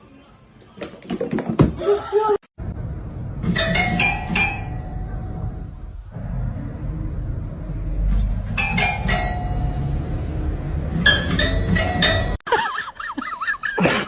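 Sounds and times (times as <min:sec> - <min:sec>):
steady low rumble: 0:02.6 - 0:12.4
ringing bell-like dings: 0:08.6 - 0:12.4.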